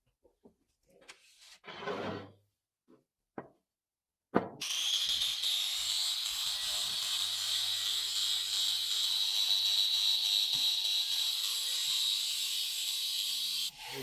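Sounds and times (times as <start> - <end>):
power tool running with high hiss: 4.6 - 14.0.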